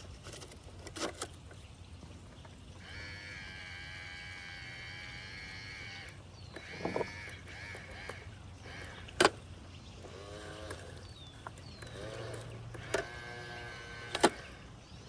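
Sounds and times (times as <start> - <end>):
small electric motor whirring: 2.3 - 15.0
sharp plastic clacks: 14.1 - 14.6.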